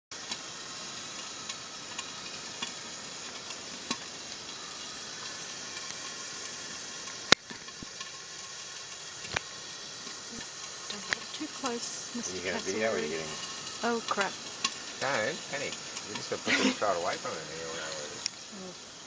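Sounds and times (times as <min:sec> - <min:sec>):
high background hiss: 0:00.2 - 0:19.0.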